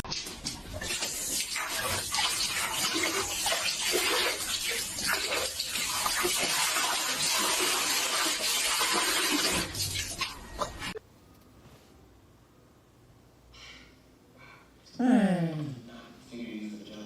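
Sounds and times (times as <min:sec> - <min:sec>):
water running and splashing: 0:00.0 - 0:11.0.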